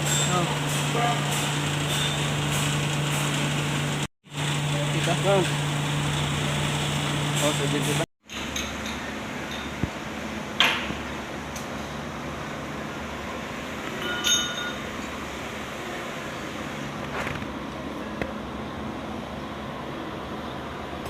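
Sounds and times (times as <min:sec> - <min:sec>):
mechanical hum: 0:00.0 - 0:21.0
metallic clink: 0:14.0 - 0:14.8.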